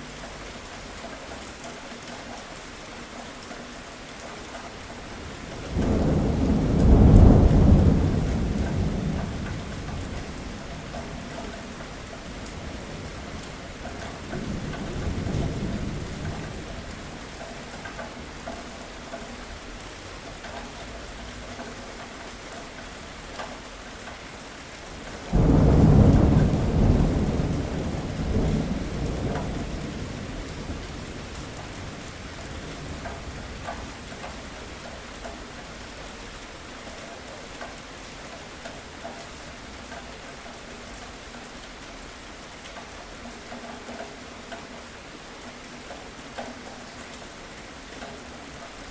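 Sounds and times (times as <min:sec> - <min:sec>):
steady rain: 0:00.0 - 0:48.9
rolling thunder: 0:05.3 - 0:13.6, 0:25.2 - 0:34.0.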